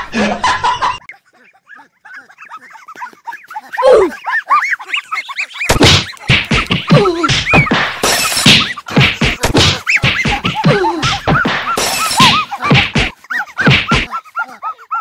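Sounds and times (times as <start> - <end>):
comedy whacks and thuds: 5.7 - 14.1.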